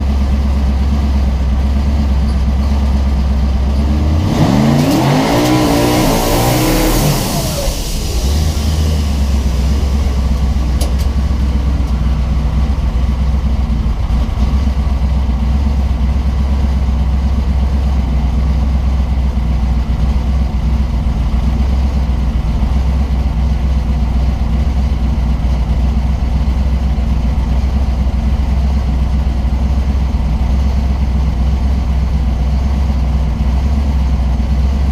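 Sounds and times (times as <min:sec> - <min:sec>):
car engine revving: 0:03.6 - 0:16.4
turbo hiss: 0:06.0 - 0:12.2.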